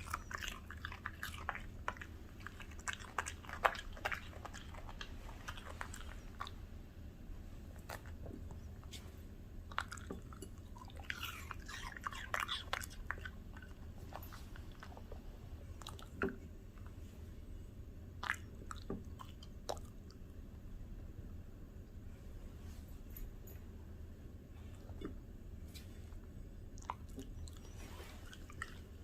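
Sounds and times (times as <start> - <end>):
dog chewing crunchy snack: 0.0 - 6.6, 9.7 - 15.1.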